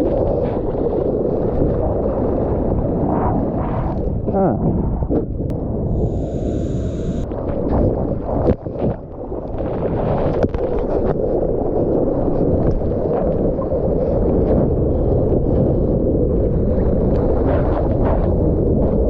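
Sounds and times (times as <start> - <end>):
boat motor and water rumble: 0.0 - 19.0
wind buffeting microphone: 0.0 - 19.0.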